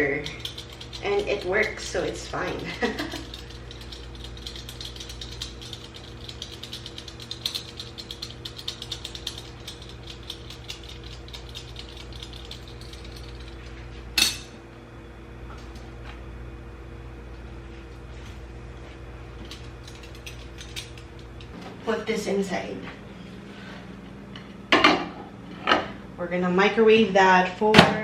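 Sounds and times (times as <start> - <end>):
peeler scraping cheese: 0.0 - 13.6.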